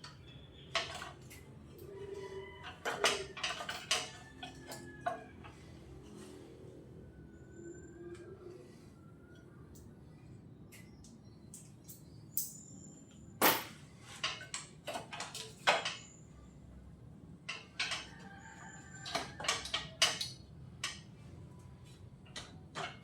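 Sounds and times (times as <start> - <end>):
metal tools clinking and knocking: 11.6 - 16.1.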